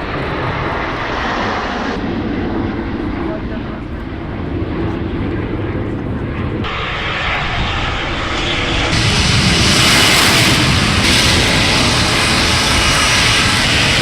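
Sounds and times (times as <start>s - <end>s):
jet roar: 0.0s - 14.0s.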